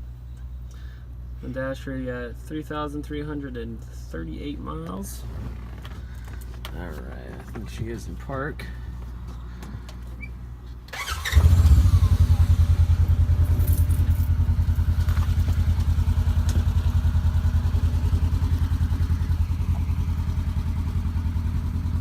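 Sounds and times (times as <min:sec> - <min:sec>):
engine starting and idling: 0:10.9 - 0:22.0.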